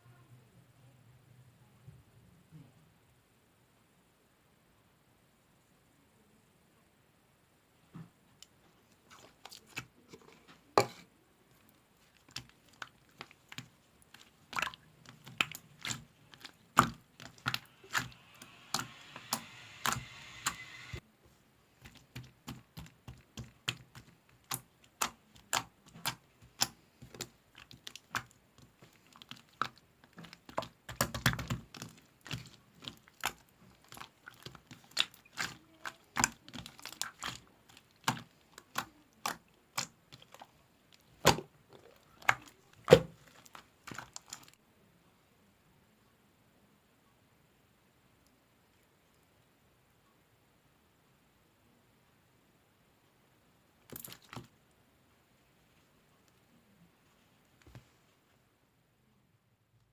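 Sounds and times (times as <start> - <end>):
slime squished by hand: 11.6 - 21.0, 21.8 - 44.6.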